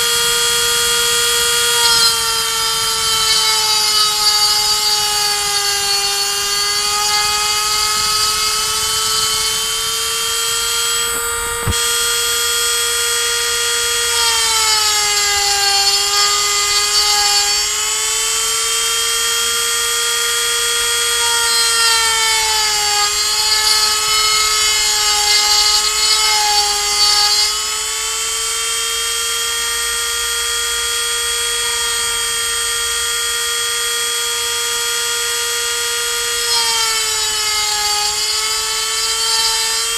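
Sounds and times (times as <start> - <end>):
rotary tool high whine: 0.0 - 39.9.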